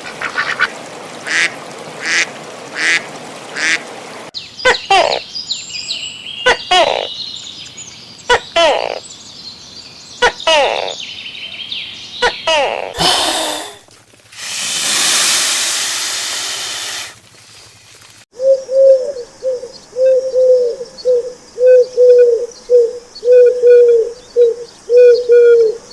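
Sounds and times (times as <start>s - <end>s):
steady hiss: 13.0s - 18.2s
bird cooing: 18.4s - 25.9s.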